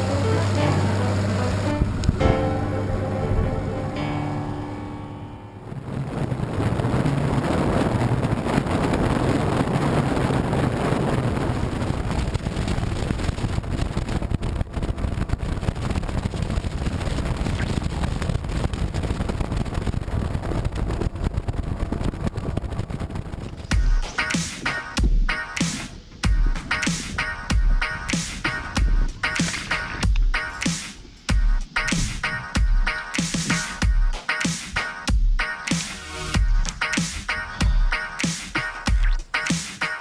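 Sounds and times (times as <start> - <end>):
boat motor running: 0.0 - 3.3
wind rush on microphone: 1.5 - 2.4, 5.6 - 23.8.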